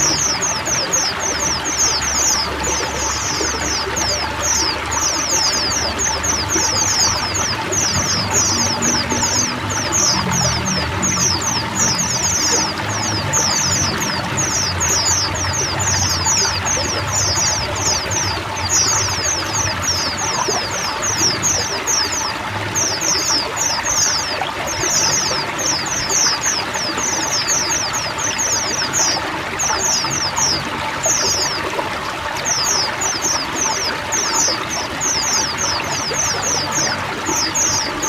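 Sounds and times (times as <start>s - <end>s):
birds chirping: 0.0s - 38.0s
trickling water: 0.0s - 38.0s.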